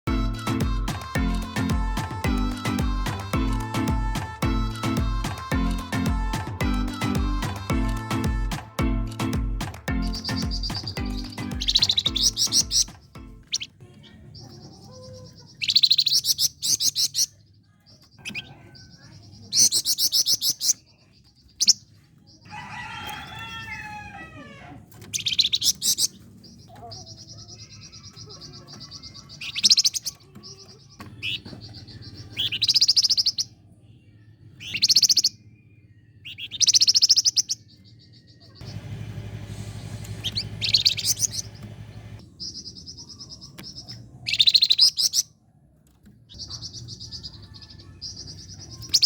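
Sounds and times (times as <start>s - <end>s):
songbird trilling: 10.0s - 13.8s, 14.4s - 17.3s, 18.2s - 20.8s, 25.1s - 33.5s, 34.6s - 35.4s, 36.2s - 38.8s, 40.1s - 45.3s.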